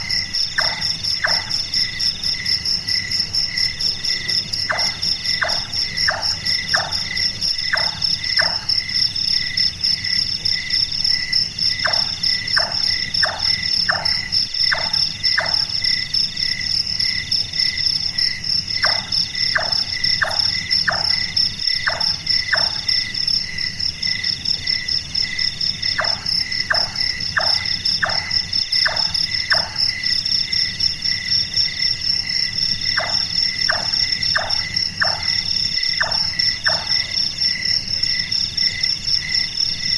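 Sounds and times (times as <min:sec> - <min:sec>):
crickets trilling: 0:00.0 - 0:39.9
nightjar knocking calls: 0:00.1 - 0:01.8, 0:04.6 - 0:08.8, 0:11.8 - 0:15.8, 0:18.8 - 0:22.9, 0:26.0 - 0:29.9, 0:32.9 - 0:37.2.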